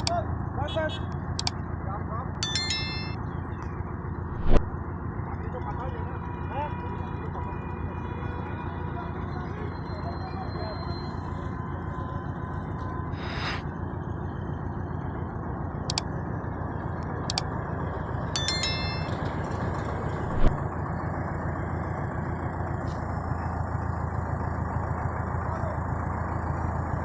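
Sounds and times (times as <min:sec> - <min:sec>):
heavy truck engine rumble: 0:00.0 - 0:27.0
short ringing tone: 0:02.4 - 0:03.2, 0:18.4 - 0:19.3.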